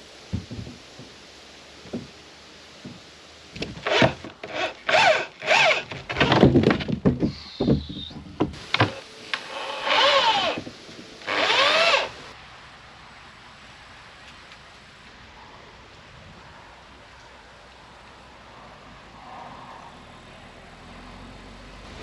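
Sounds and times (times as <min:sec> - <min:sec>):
knocks: 0:00.3 - 0:01.2
wood rubbing and scraping: 0:00.3 - 0:01.2, 0:01.8 - 0:02.2, 0:02.8 - 0:12.3.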